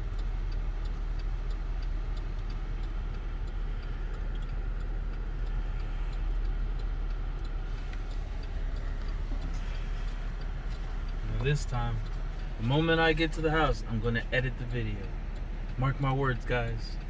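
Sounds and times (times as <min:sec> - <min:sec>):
faint regular ticking: 0:00.0 - 0:17.0
road and engine noise in car: 0:00.0 - 0:17.0.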